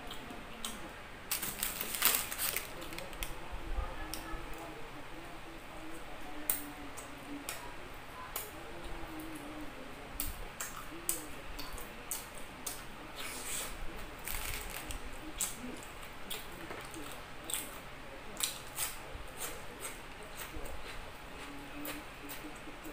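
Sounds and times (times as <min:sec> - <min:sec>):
person chewing bread: 0:10.6 - 0:17.8, 0:18.4 - 0:22.9.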